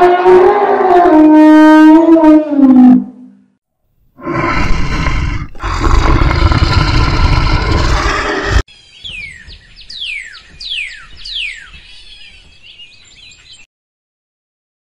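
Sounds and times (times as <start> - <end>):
lynx growling hoarsely: 4.2 - 8.7.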